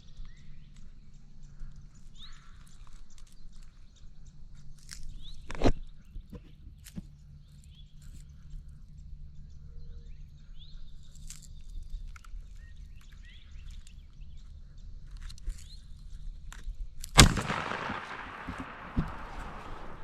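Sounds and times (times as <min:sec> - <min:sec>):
songbirds chirping: 0:07.1 - 0:16.5, 0:17.2 - 0:20.0
shotgun shot with echo: 0:17.2 - 0:20.0.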